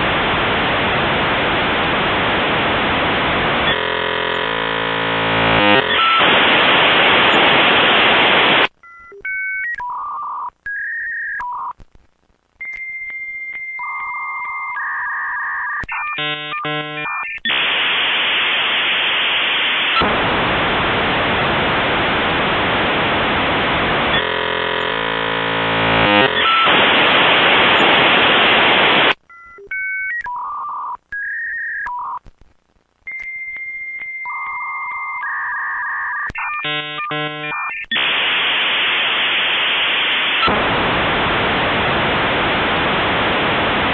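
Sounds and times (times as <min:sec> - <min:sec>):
buzzy modem chord: 0:00.0 - 0:08.7, 0:15.9 - 0:29.2, 0:36.4 - 0:43.9
modem hiss: 0:00.0 - 0:09.3, 0:09.9 - 0:29.3, 0:31.1 - 0:43.9
modem beeps: 0:03.7 - 0:06.5, 0:12.6 - 0:17.7, 0:24.1 - 0:32.2, 0:33.1 - 0:38.2.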